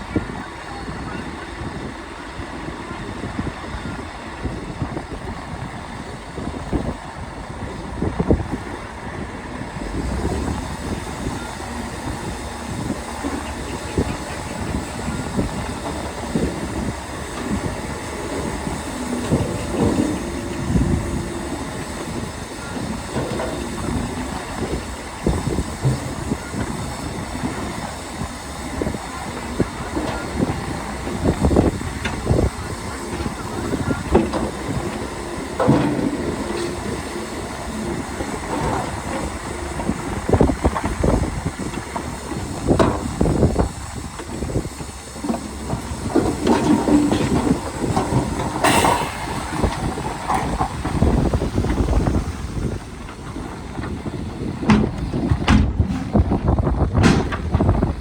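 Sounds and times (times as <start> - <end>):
bulldozer engine running: 0.0 - 58.0
steel tracks clanking: 0.0 - 58.0
track squeal: 9.6 - 55.3.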